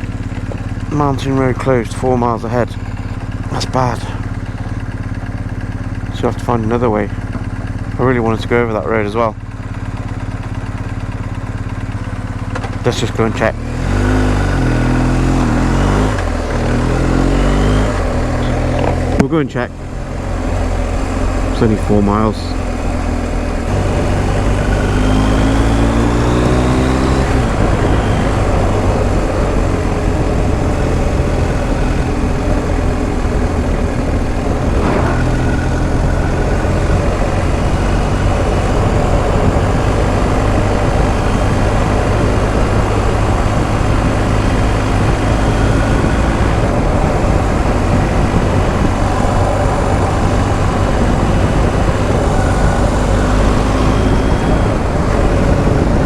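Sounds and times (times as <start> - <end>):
motorcycle engine pulling away: 0.0 - 8.0, 8.9 - 56.0
wind rushing: 22.5 - 56.0.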